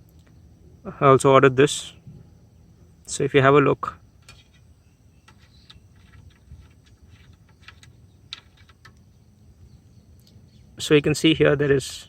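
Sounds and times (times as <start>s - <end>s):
low background rumble: 0.0s - 12.0s
faint small clicks and taps: 10.2s - 10.4s.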